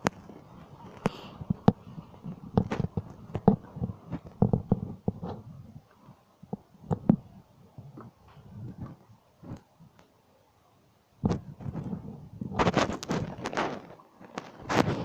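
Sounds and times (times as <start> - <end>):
soft knocks and thumps: 1.4 - 5.6, 6.5 - 7.3, 11.2 - 15.0.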